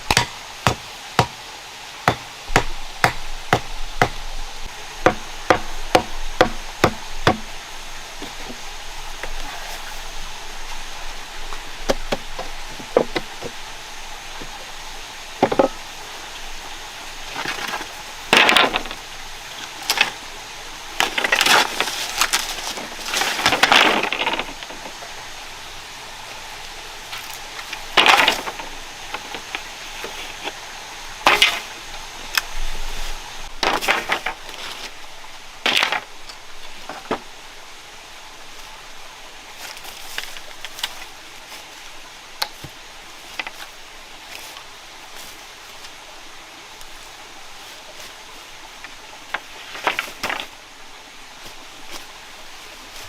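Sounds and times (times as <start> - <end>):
tool chopping wood: 0.0 - 1.4, 2.1 - 4.2, 5.0 - 7.5
scraping or rustling: 8.2 - 10.3, 21.0 - 25.0, 32.6 - 35.0.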